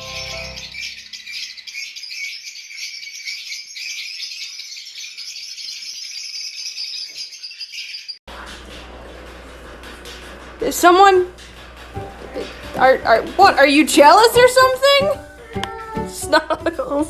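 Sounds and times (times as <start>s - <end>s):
small birds chirping: 0.0s - 8.2s, 11.3s - 17.0s.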